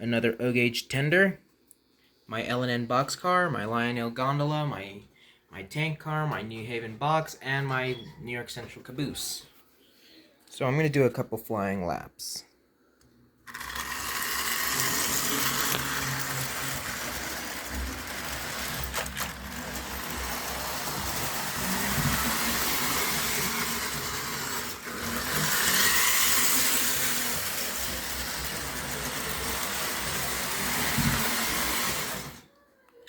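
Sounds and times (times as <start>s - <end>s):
toy train running on track: 13.5s - 32.5s.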